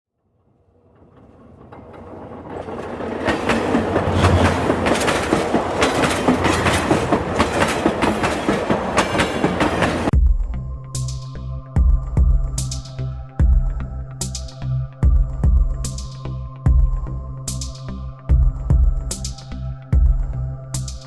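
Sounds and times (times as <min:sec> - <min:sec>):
train wheels clattering over rails: 0:00.9 - 0:10.1.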